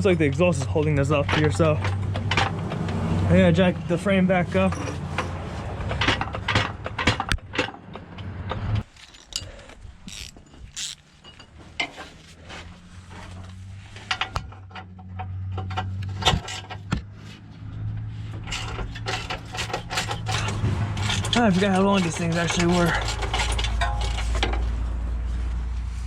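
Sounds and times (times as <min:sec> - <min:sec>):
metallic clicks and clanks of tools: 0:04.6 - 0:12.0, 0:14.1 - 0:17.1, 0:18.4 - 0:24.6.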